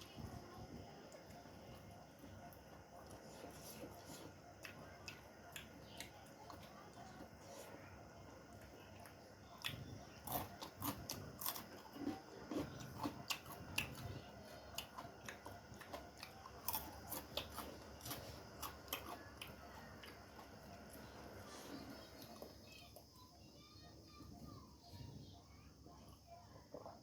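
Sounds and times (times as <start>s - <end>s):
crisp bites and chewing: 9.6s - 14.1s.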